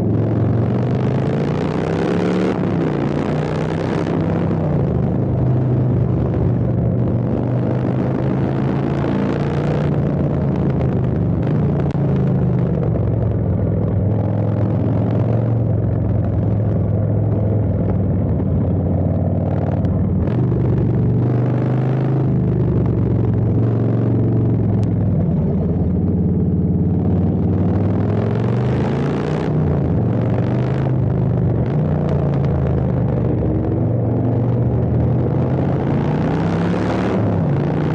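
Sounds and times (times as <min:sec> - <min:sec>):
motorcycle engine idling and revving: 0:00.0 - 0:37.9.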